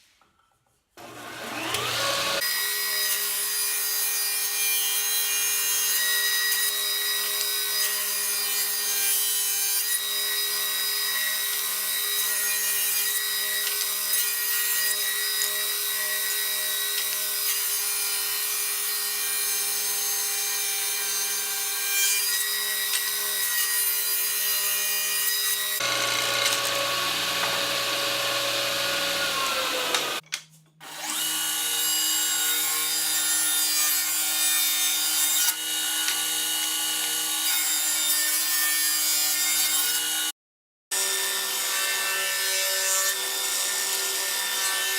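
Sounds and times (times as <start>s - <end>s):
power tool motor hum: 25.8s - 30.2s.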